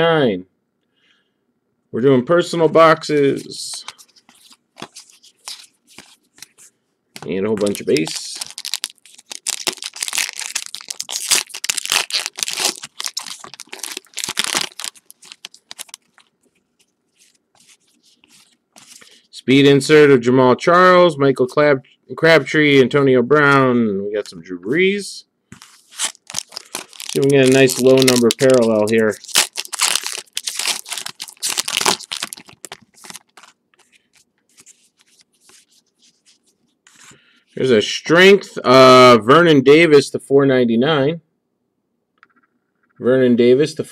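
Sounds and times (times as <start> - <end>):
cards sliding: 3.3 - 16.3, 17.2 - 19.1, 25.5 - 37.2
foil wrappers tearing and crinkling: 7.6 - 16.3, 25.6 - 36.2.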